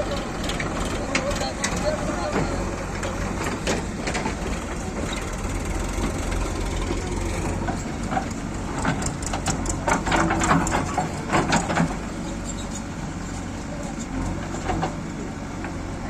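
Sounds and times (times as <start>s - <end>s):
diesel engine running: 0.0s - 16.0s
sharp knocks and rattles: 2.7s - 12.9s.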